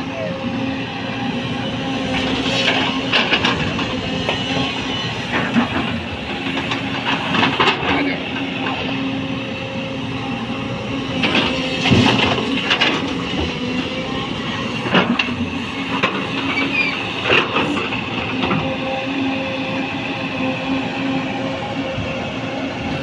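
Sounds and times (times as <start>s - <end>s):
excavator diesel engine running: 0.0s - 23.0s
excavator bucket clanks and knocks: 2.6s - 8.9s, 11.1s - 13.6s, 14.8s - 18.7s.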